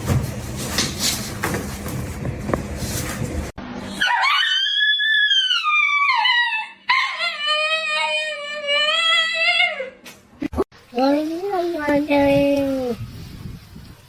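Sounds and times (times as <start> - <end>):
dog howling: 3.9 - 10.0.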